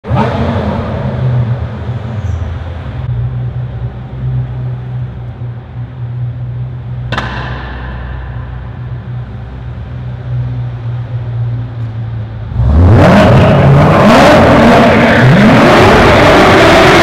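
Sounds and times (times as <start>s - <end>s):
car engine running: 0.0s - 17.0s
sharp crack: 7.1s - 9.3s.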